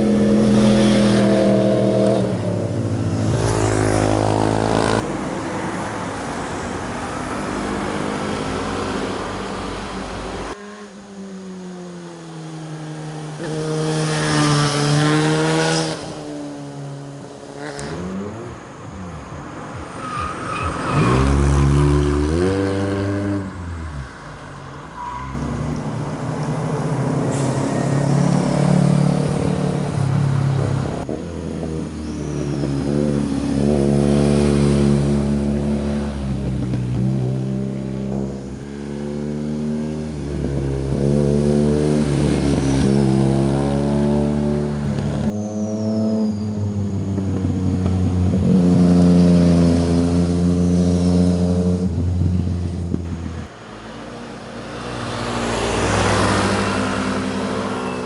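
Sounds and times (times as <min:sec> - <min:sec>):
motorcycles revving past: 0:00.0 - 0:05.1, 0:12.9 - 0:18.5, 0:27.7 - 0:53.2, 0:54.2 - 0:58.0.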